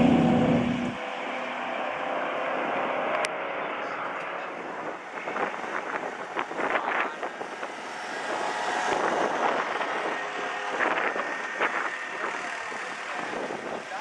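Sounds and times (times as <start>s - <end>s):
engine running: 0.0s - 1.0s.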